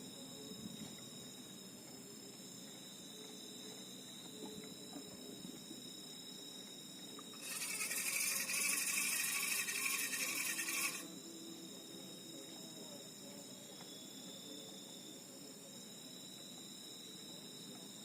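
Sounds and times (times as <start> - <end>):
insects trilling: 0.0 - 18.0
loud rasping buzz: 7.4 - 11.1.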